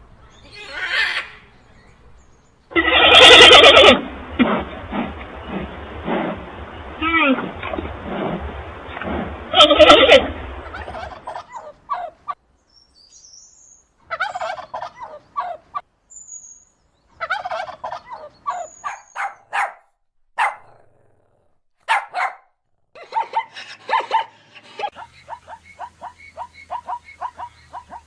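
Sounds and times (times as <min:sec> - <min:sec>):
turkeys gobbling: 0:09.6 - 0:12.1, 0:14.1 - 0:15.6, 0:17.2 - 0:18.7.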